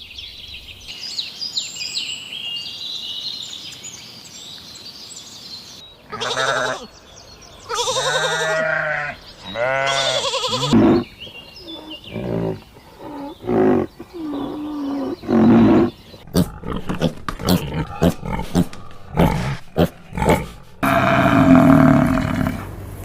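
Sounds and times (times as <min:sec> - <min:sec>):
wild animal calls and grunts: 0:07.6 - 0:22.8
animal roar: 0:08.1 - 0:22.8.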